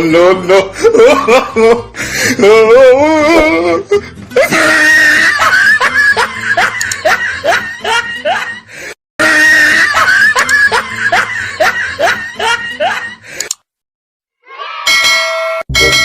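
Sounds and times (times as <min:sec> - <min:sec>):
rising pitched laughs: 0:04.4 - 0:13.4.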